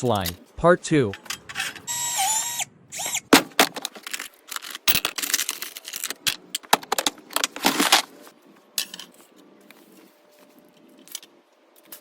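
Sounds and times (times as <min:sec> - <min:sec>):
metal parts and tools clinking: 0:00.0 - 0:02.4, 0:03.6 - 0:08.1.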